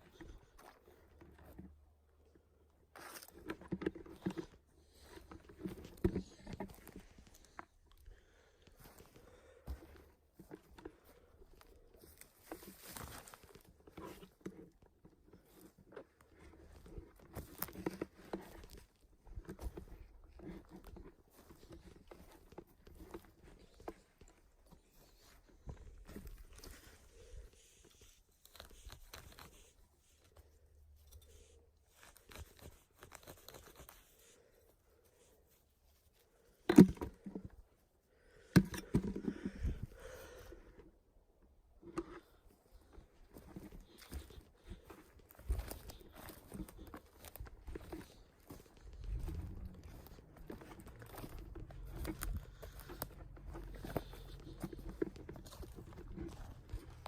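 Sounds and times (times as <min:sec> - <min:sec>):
footsteps crunching on forest litter: 0:04.2 - 0:14.4, 0:42.8 - 0:57.0
twigs snapping and rustling: 0:43.8 - 0:57.0.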